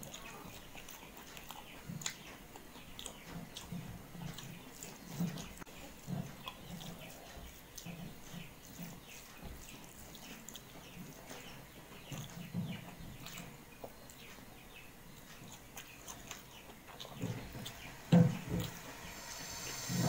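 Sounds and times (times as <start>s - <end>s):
person chewing soft food: 0.0s - 20.0s
low thuds: 17.2s - 20.0s.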